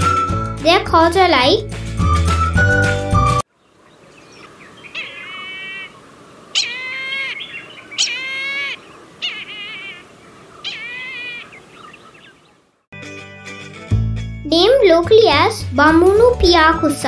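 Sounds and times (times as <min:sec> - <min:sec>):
kite calling: 0:04.2 - 0:12.5.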